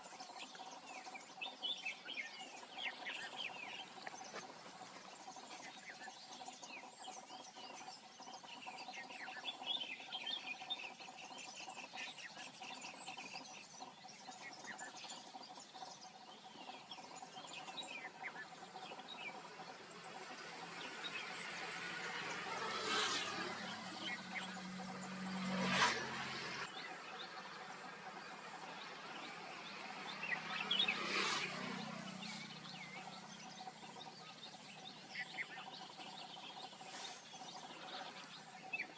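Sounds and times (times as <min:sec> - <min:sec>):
small birds chirping: 0:00.0 - 0:38.9
insects droning: 0:12.3 - 0:38.9.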